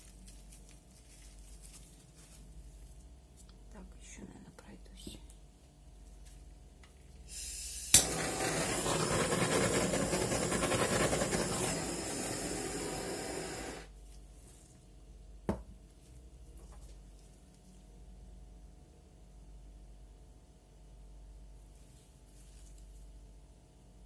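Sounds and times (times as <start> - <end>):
hand-held tool hissing: 7.3 - 13.9.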